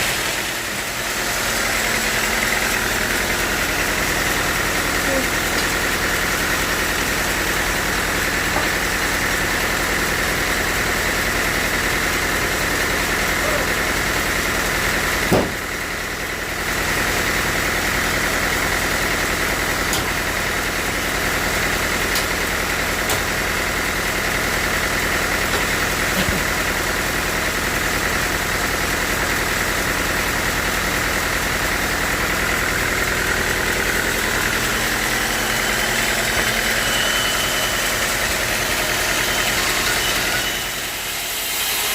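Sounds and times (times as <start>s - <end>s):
sawmill machinery drone and whine: 0.0s - 41.9s.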